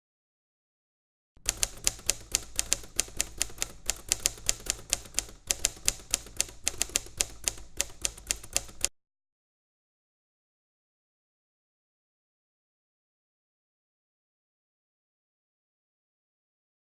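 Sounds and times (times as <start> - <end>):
rapid typing clicks: 1.4 - 8.9.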